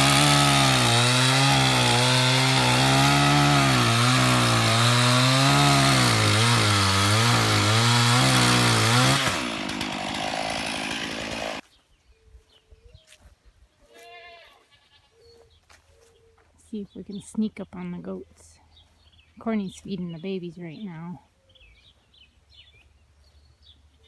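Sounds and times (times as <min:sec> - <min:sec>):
chainsaw running at high revs: 0:00.0 - 0:11.6.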